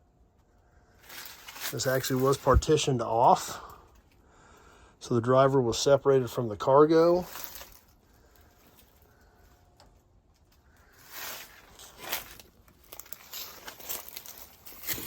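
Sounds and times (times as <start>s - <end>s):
footsteps on dry grass and debris: 0.9s - 3.4s, 6.9s - 9.5s, 10.4s - 15.0s.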